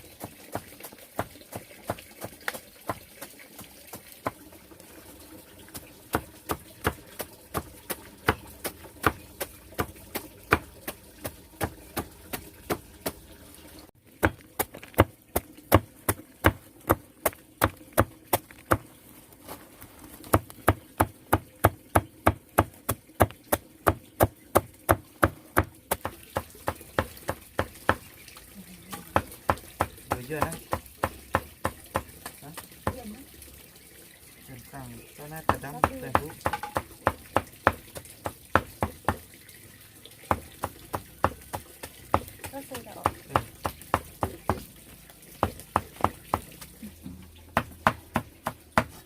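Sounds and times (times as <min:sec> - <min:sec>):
knife chopping on wooden board: 0:06.1 - 0:13.2, 0:20.3 - 0:28.1, 0:28.9 - 0:33.0, 0:35.4 - 0:39.2, 0:40.3 - 0:44.7, 0:45.4 - 0:46.5, 0:47.5 - 0:49.0.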